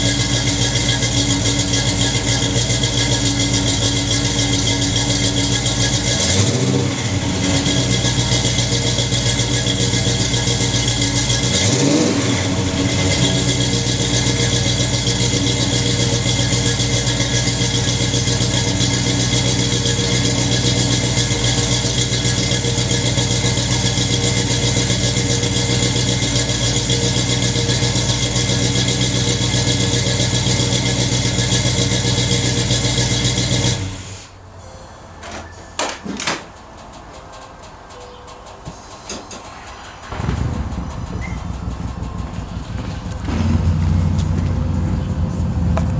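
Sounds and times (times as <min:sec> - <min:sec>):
car engine idling: 0:00.0 - 0:34.5, 0:36.5 - 0:45.9.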